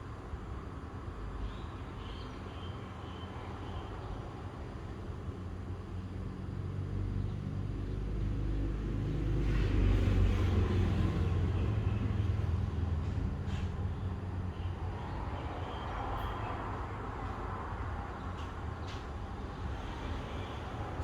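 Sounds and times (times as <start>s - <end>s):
vehicle engine rumble passing: 6.6s - 21.0s.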